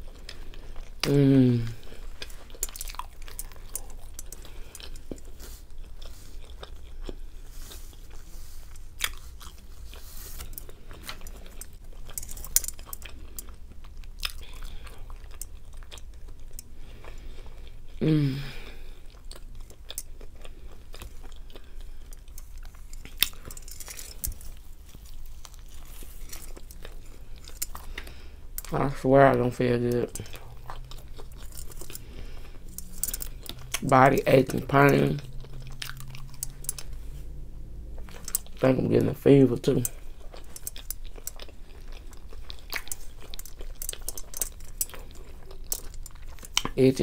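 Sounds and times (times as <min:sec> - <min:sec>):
person chewing: 0:00.0 - 0:47.0
person humming: 0:01.0 - 0:01.8, 0:18.0 - 0:18.8.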